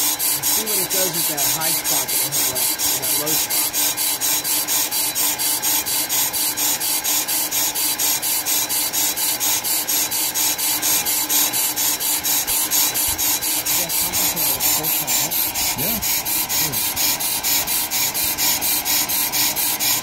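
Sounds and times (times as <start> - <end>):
lathe bits scraping brake rotor: 0.0 - 20.0
lathe humming: 0.0 - 20.0.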